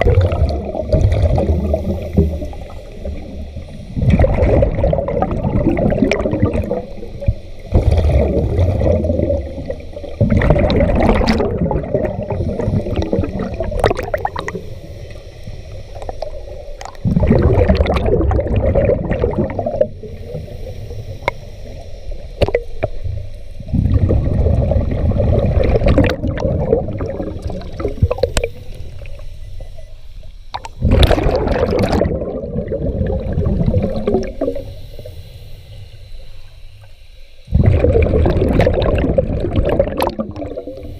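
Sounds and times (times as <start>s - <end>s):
diver exhaling bubbles: 0.0s - 14.6s, 16.0s - 20.6s, 23.6s - 29.1s, 30.8s - 34.8s, 37.5s - 40.9s
quiet regulator inhalations: 0.7s - 4.3s, 6.2s - 10.4s, 11.5s - 17.2s, 19.6s - 24.0s, 26.9s - 30.9s, 32.2s - 37.6s, 40.3s - 40.9s.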